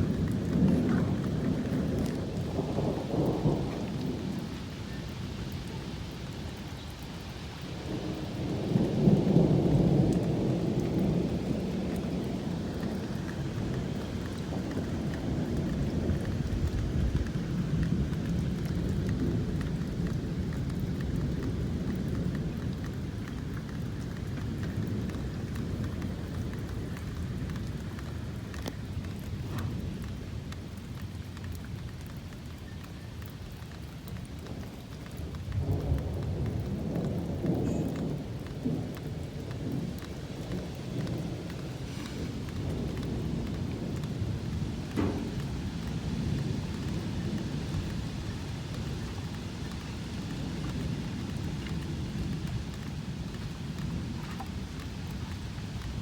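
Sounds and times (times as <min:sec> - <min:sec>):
thunder rumbling: 0:00.0 - 0:31.2, 0:34.2 - 0:56.0
steady rain: 0:00.0 - 0:56.0.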